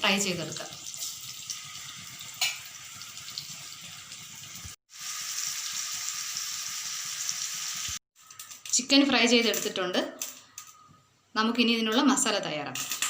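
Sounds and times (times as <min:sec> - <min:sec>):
chicken sizzling in oil: 0:00.7 - 0:08.0.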